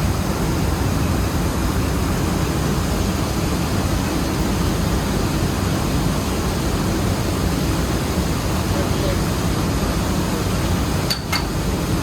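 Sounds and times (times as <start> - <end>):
mill machinery drone: 0.0 - 12.0.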